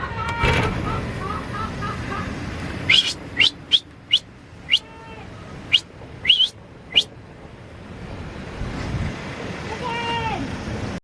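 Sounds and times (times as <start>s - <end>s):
bird chirping: 2.9s - 4.9s, 5.7s - 7.1s.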